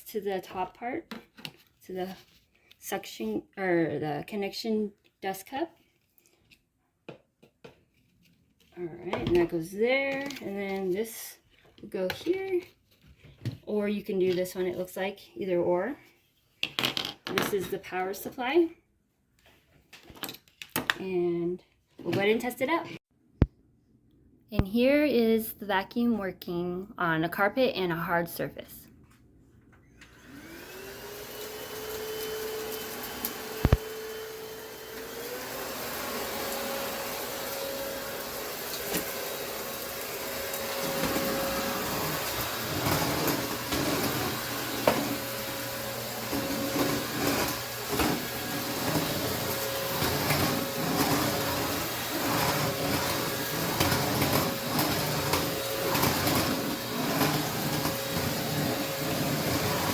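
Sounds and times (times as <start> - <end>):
vacuum motor whining: 30.0 - 59.9
vacuum running over floor: 30.1 - 59.9.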